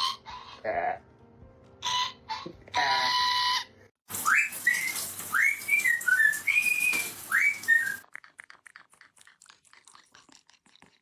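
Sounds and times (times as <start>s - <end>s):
parrot whistling: 3.1s - 8.0s.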